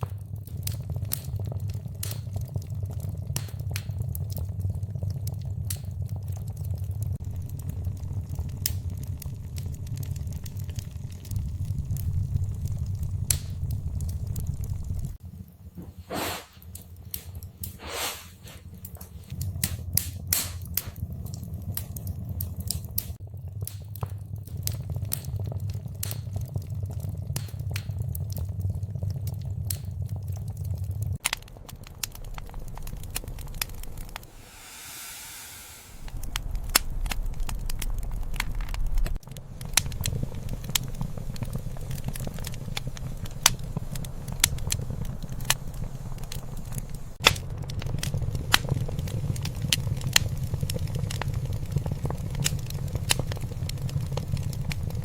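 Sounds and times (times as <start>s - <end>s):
low rumble of burning logs: 0.0s - 55.0s
wood fire crackling and popping: 0.0s - 55.0s
fire hissing: 6.8s - 23.2s, 29.2s - 55.0s.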